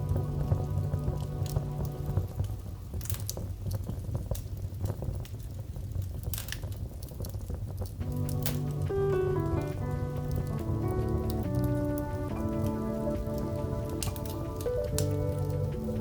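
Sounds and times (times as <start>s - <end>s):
soft music: 0.0s - 4.4s, 7.9s - 16.0s
wood fire crackling: 0.0s - 16.0s.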